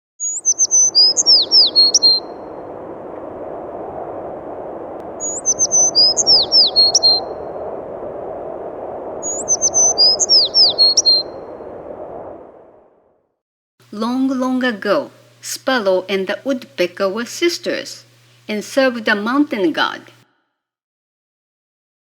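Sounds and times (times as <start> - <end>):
songbird chirping: 0.2 - 2.9, 5.2 - 7.8, 9.2 - 11.5.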